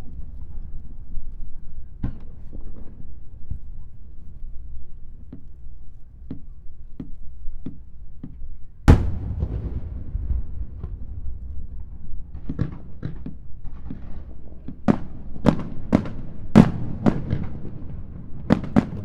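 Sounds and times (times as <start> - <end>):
low continuous rumble: 8.9 - 14.6
firework boom with echo: 8.9 - 15.1
fireworks cracking: 8.9 - 15.1.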